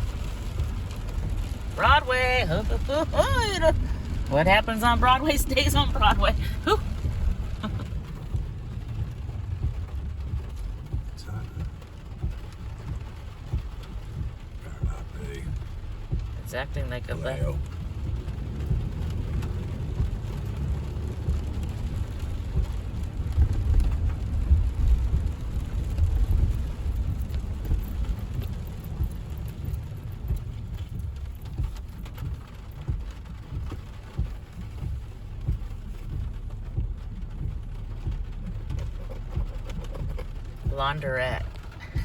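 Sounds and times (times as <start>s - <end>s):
tyres rumbling on wet road: 0.0s - 42.0s
car jolts: 17.6s - 42.0s.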